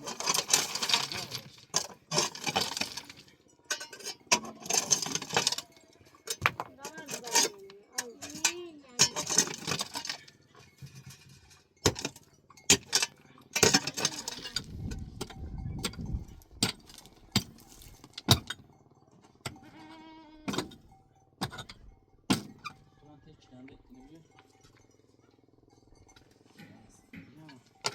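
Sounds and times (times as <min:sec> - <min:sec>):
knocks and clinks of objects: 0:00.0 - 0:27.9
livestock bleating: 0:19.5 - 0:20.6.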